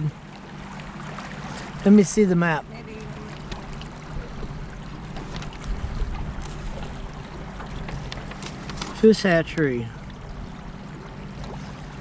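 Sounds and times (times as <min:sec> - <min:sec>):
boat motor humming: 0:00.0 - 0:12.0
rushing water: 0:00.0 - 0:12.0
wind noise: 0:05.4 - 0:07.0.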